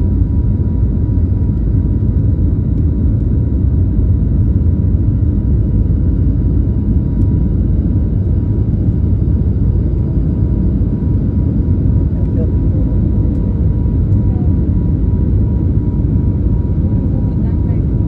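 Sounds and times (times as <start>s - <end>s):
jet engines rumbling at takeoff: 0.0s - 18.0s.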